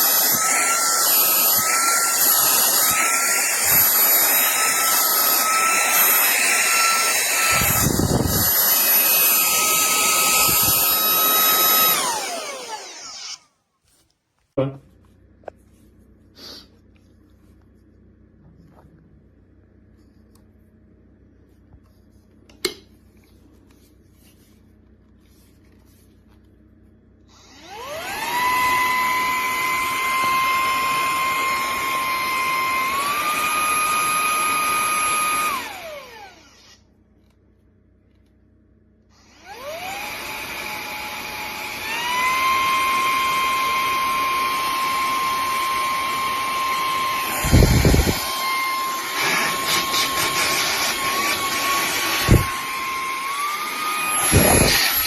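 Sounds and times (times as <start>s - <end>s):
handheld vacuum cleaner whining: 0.0s - 13.5s, 27.3s - 36.9s, 39.2s - 55.0s.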